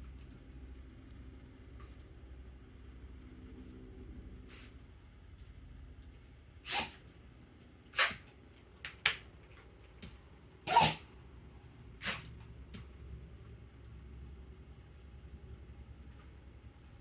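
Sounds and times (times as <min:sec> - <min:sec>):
dog sneezing: 0:06.6 - 0:07.0, 0:07.9 - 0:08.3, 0:10.6 - 0:11.2, 0:12.0 - 0:12.3
dog snorting: 0:08.0 - 0:08.2, 0:10.7 - 0:11.1, 0:12.0 - 0:12.3.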